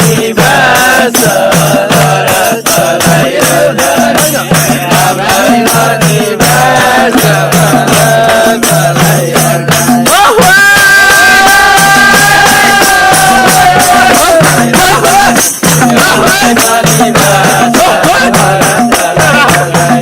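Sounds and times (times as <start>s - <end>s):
person singing folk song: 0.0s - 20.0s
quick high percussion strikes: 0.0s - 20.0s.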